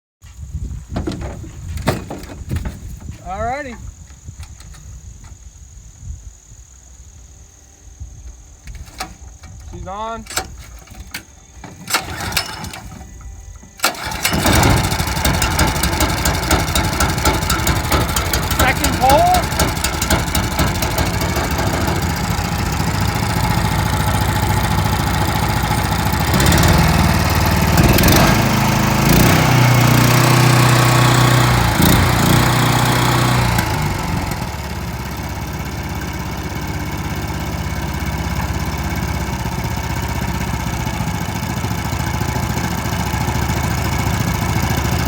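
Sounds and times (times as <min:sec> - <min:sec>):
boat motor engine running: 0:13.8 - 0:45.0.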